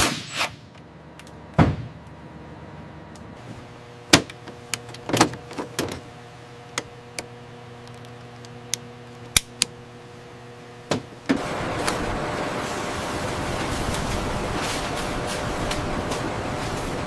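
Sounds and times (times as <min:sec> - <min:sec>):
faint steady hum: 0:00.6 - 0:17.0
loud rushing hiss: 0:11.3 - 0:17.0.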